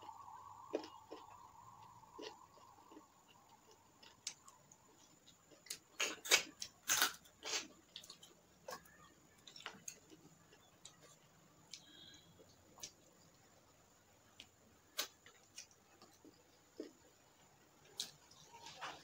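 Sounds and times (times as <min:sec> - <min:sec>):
mouth chewing and smacking: 0:00.0 - 0:12.2.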